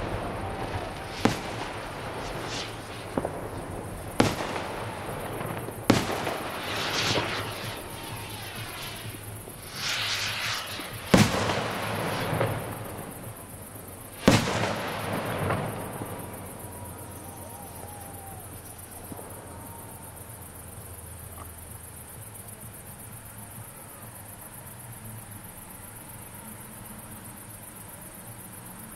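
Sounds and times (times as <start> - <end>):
loud firework bangs: 0.0 - 20.4
fireworks crackling: 0.0 - 28.9.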